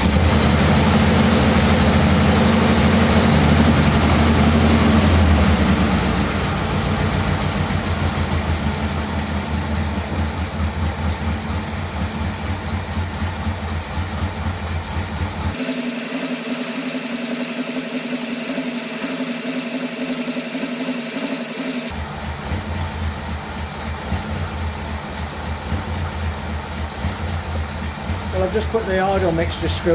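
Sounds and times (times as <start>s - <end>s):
car engine idling: 0.0s - 29.9s.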